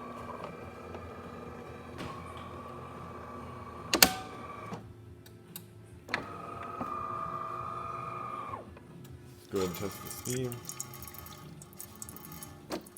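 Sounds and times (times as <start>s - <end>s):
water pump buzzing hum: 0.0s - 4.7s, 9.4s - 12.9s.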